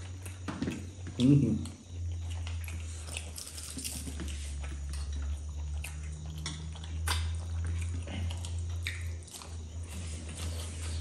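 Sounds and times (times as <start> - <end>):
people chewing: 0.0 - 11.0
steady low hum: 0.0 - 11.0.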